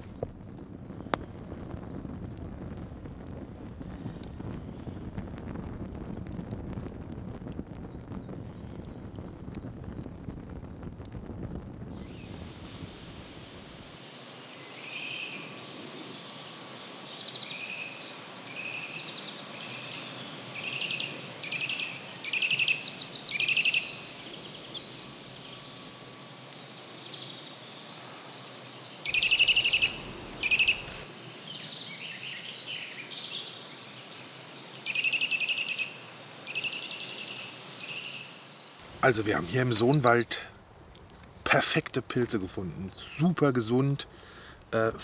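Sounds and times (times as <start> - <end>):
songbirds singing: 11.9 - 13.6, 21.2 - 25.9, 29.1 - 31.0, 37.8 - 45.0
rapid bird trill: 29.1 - 31.0, 38.8 - 40.4.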